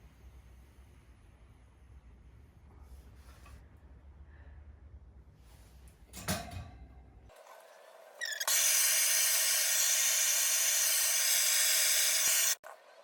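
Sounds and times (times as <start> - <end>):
hot-air dryer blowing: 8.5 - 12.6.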